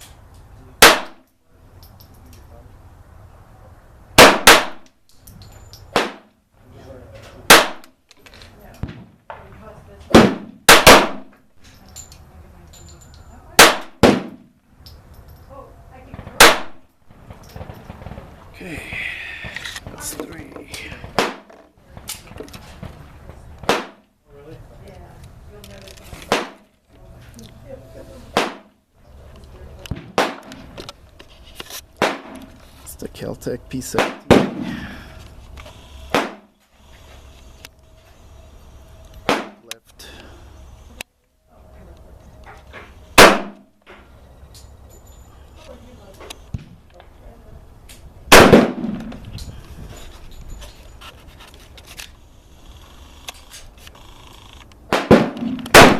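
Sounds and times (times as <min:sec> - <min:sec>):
pistol shots: 0:00.8 - 0:01.2, 0:04.2 - 0:04.9, 0:05.9 - 0:06.3, 0:07.5 - 0:07.9, 0:10.1 - 0:11.4, 0:13.6 - 0:14.5, 0:16.4 - 0:16.8, 0:21.0 - 0:21.5, 0:23.6 - 0:24.0, 0:26.3 - 0:26.6, 0:28.4 - 0:28.7, 0:29.9 - 0:30.6, 0:32.0 - 0:32.4, 0:33.9 - 0:34.8, 0:36.1 - 0:36.5, 0:39.2 - 0:39.6, 0:43.2 - 0:43.7, 0:48.3 - 0:49.2, 0:54.9 - 0:55.9.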